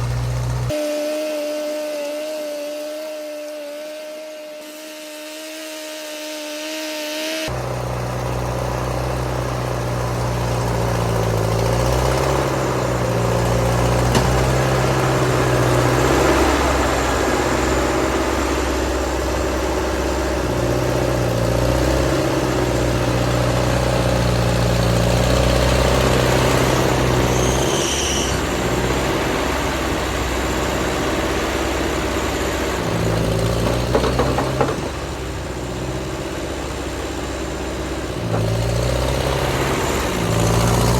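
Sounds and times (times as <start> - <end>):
tractor engine under load: 0.0 - 0.7, 7.5 - 40.9
high squeak: 26.4 - 28.8.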